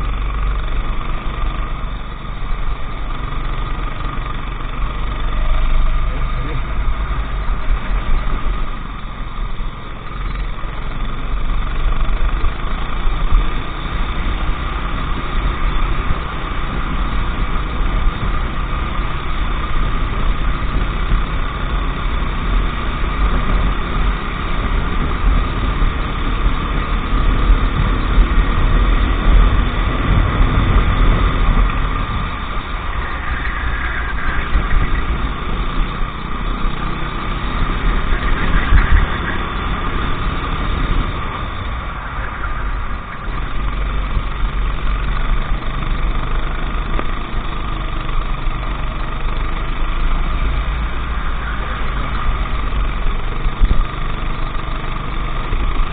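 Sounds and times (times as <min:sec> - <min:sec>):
go-kart engine running: 0:00.0 - 0:55.9.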